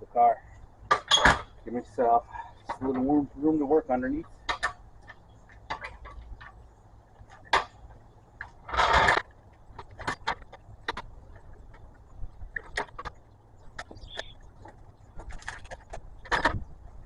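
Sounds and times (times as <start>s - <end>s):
metal clicks and knocks: 4.2s - 6.6s
metal scrape: 8.7s - 9.2s.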